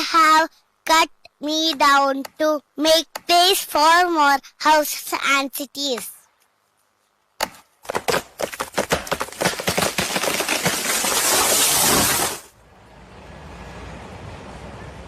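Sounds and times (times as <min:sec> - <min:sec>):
wood cracking and splintering: 0:07.8 - 0:12.5
faint hiss: 0:10.8 - 0:15.0.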